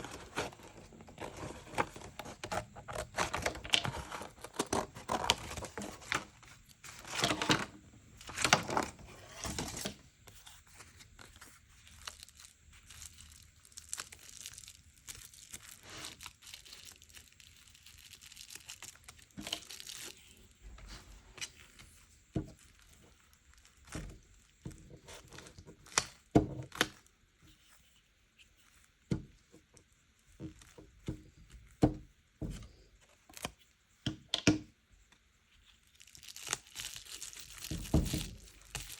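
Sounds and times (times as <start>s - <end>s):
paper rustling and tearing: 0.0s - 22.0s.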